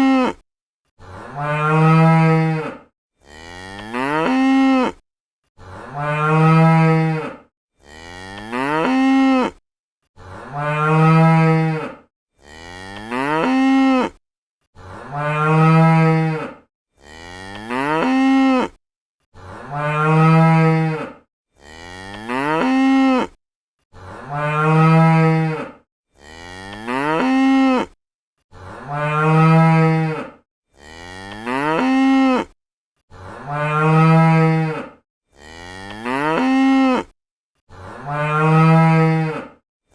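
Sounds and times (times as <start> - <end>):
cow mooing: 1.0 - 5.0, 5.6 - 9.6, 10.2 - 14.2, 14.8 - 39.6.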